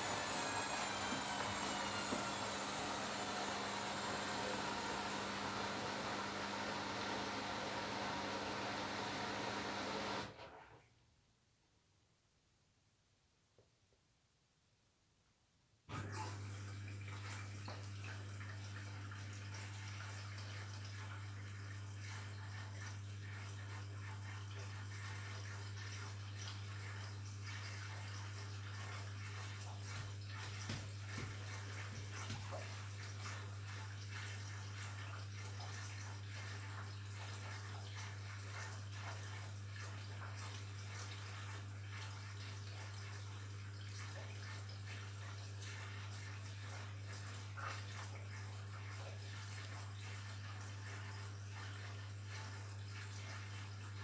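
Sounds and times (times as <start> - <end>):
water sloshing in drum: 0.0 - 9.5, 15.9 - 54.0
low motor hum: 0.0 - 10.4.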